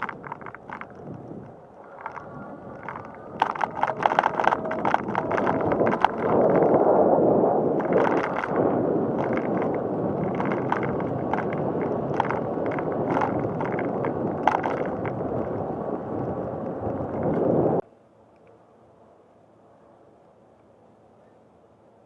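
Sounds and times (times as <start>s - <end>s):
light clicks and rattles: 0.0s - 6.8s, 7.8s - 15.6s
bicycle rolling noise: 0.0s - 17.8s
wind rushing on microphone: 0.0s - 17.8s.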